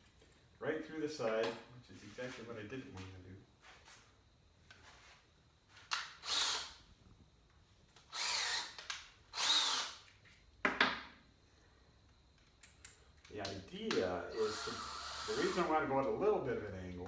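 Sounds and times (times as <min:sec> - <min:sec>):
power drill bursts: 0:05.9 - 0:06.8, 0:08.1 - 0:10.0, 0:14.3 - 0:15.8.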